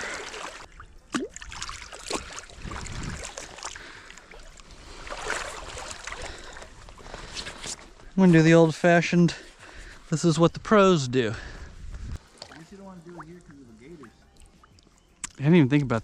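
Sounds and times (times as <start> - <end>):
wading through water: 0.0 - 8.2, 11.4 - 14.9.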